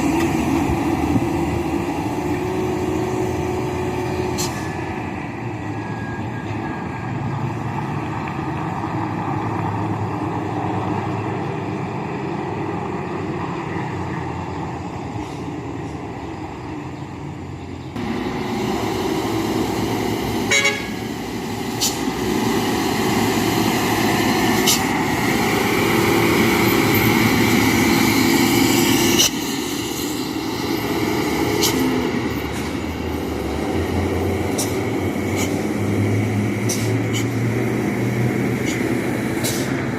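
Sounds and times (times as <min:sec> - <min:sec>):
heavy dump trucks passing: 0:00.0 - 0:39.9
long vehicle horn: 0:20.4 - 0:21.1.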